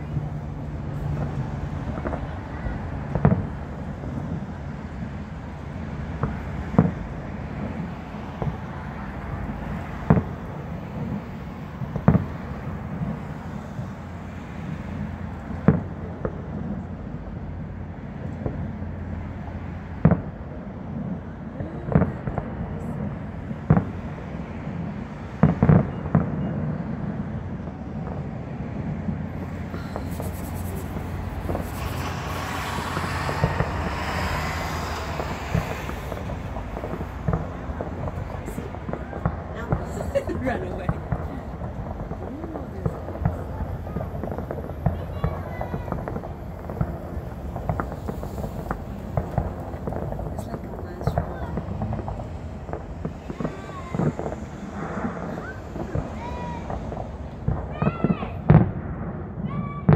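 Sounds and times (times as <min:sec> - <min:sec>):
fireworks bangs: 0:00.0 - 0:59.9
low rumble: 0:27.5 - 0:57.8
bright hissing: 0:29.6 - 0:36.3.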